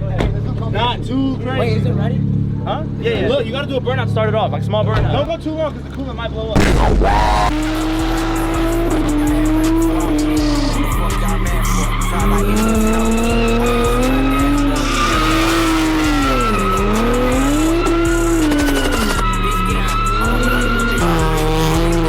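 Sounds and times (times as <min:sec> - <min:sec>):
car engine revving hard: 0:06.6 - 0:22.0
music: 0:06.6 - 0:22.0
tyres squealing: 0:06.6 - 0:22.0.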